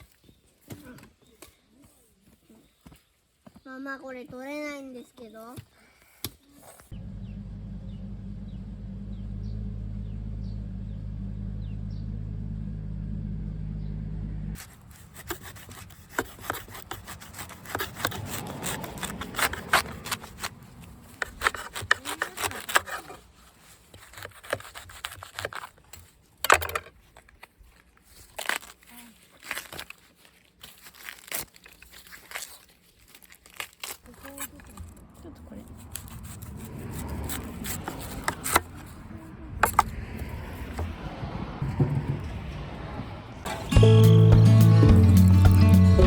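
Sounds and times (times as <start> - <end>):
steady low rumble: 6.9 - 14.6
knife cutting bamboo shoots: 14.6 - 27.4.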